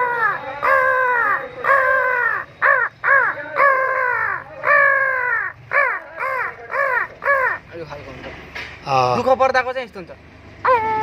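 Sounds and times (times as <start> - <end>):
man imitating crow caws: 0.0 - 7.8, 10.6 - 11.0.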